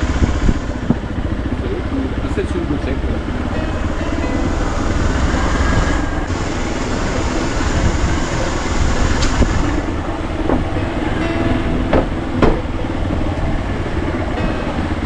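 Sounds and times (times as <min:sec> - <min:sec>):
continuous rattling: 0:00.0 - 0:15.0
motorbike engine: 0:00.0 - 0:15.0
sharp knocks: 0:10.4 - 0:13.2.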